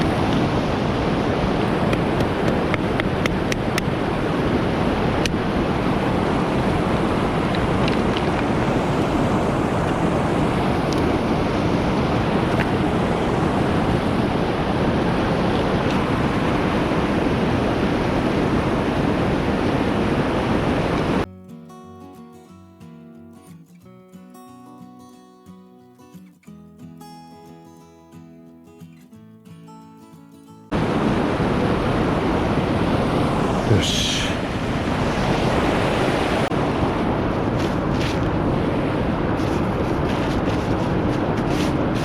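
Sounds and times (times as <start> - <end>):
quiet guitar music: 21.3 - 30.7
loud rushing noise: 30.7 - 42.0.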